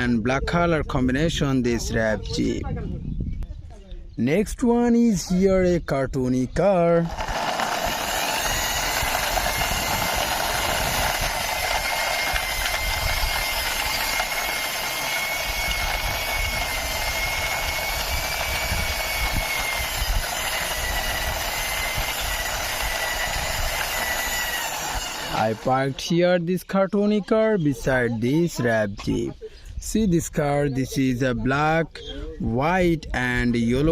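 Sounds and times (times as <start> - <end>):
toy car whirring with high whine: 7.0 - 26.0.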